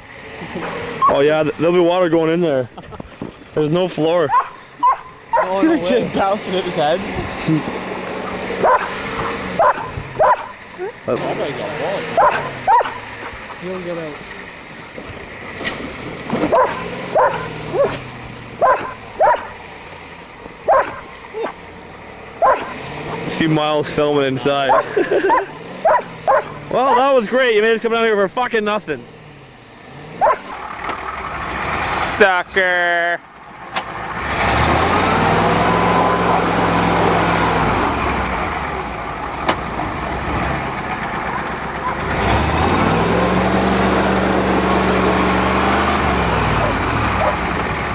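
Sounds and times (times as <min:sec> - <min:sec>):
truck engine running: 0:00.0 - 0:47.9
dog barking: 0:04.3 - 0:05.6, 0:08.6 - 0:08.9, 0:09.6 - 0:10.6, 0:12.2 - 0:13.1, 0:16.5 - 0:18.0, 0:18.6 - 0:19.6, 0:20.7 - 0:21.6, 0:22.4 - 0:22.8, 0:24.7 - 0:27.1, 0:30.2 - 0:30.5, 0:46.6 - 0:47.4.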